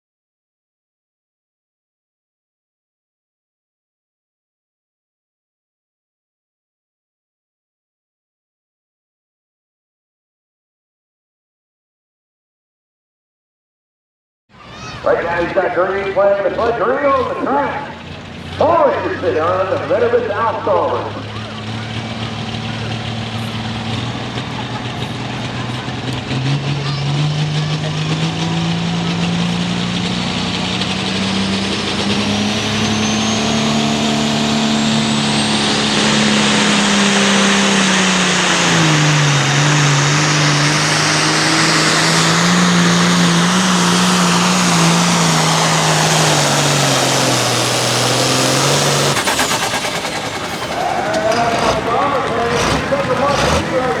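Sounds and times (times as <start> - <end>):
diesel tractor engine at full throttle: 14.6 - 54.0.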